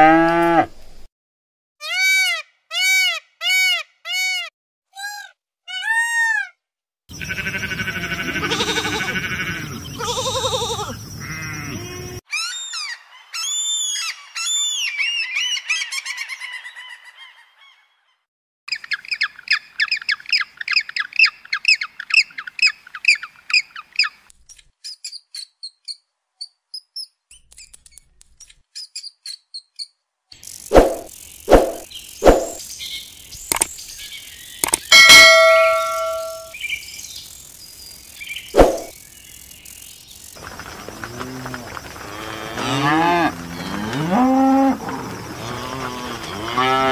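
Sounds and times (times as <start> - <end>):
gulls calling: 34.6 - 36.6
peafowl calling: 34.9 - 36.6
mouse squeaking: 38.6 - 38.9.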